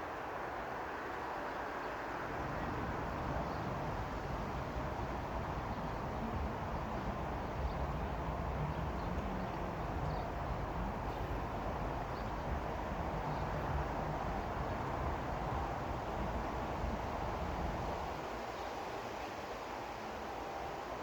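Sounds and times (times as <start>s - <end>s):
vehicle rumble and hiss: 0.0s - 21.0s.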